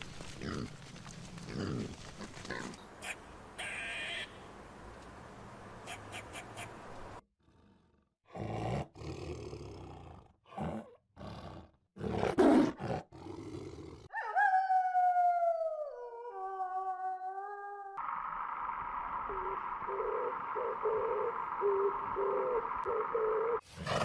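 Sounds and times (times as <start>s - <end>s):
tiger roaring and growling: 7.4s - 14.1s
wolf howling: 14.2s - 18.0s.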